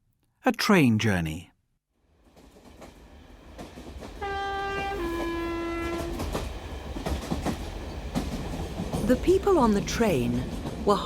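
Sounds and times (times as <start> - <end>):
train rumbling with clicking wheels: 2.2 - 11.0
two-note train horn: 4.2 - 6.3.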